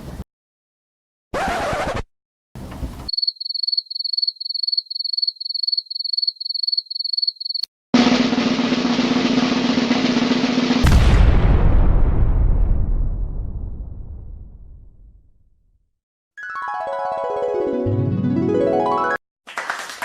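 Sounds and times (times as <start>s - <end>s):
drum roll: 8.0s - 12.0s.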